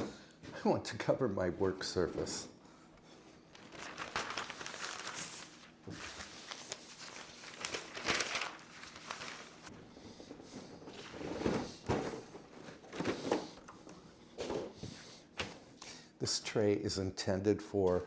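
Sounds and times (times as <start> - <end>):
rustling and handling noises: 1.5 - 15.8.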